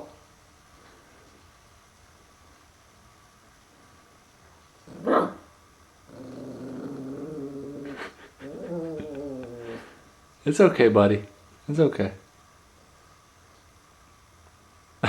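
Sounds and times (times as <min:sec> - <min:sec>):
puppy growling low: 0:04.8 - 0:10.2
puppy barking: 0:05.0 - 0:05.5.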